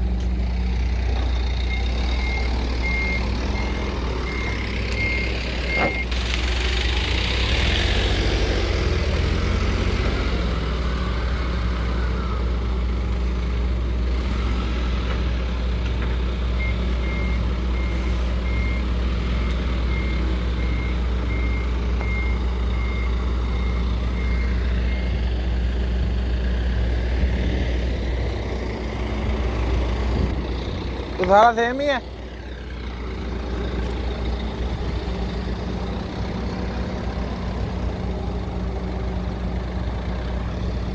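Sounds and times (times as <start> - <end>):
diesel truck engine running: 0.0 - 40.9
electronic warning beeps: 1.7 - 6.1, 19.5 - 25.2.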